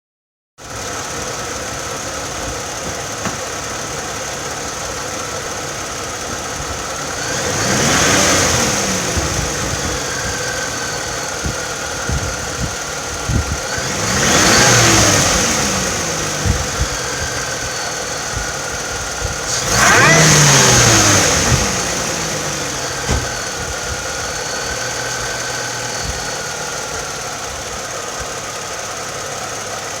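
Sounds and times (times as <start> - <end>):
car engine idling and revving: 0.6 - 30.0
supercharger whine: 0.6 - 30.0.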